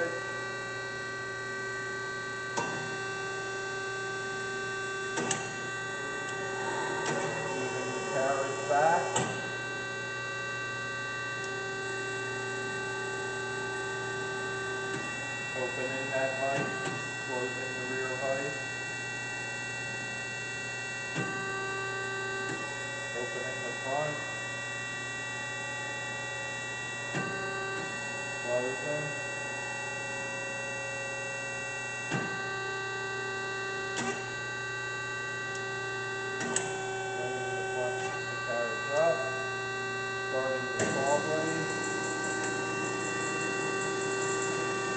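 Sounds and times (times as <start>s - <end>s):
band saw humming: 0.0s - 18.6s, 34.9s - 44.9s.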